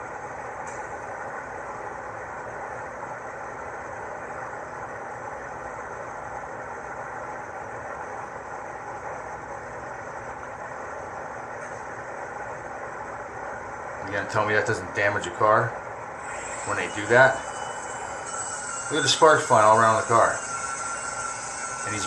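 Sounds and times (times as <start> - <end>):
angle grinder cutting metal: 16.2 - 22.0.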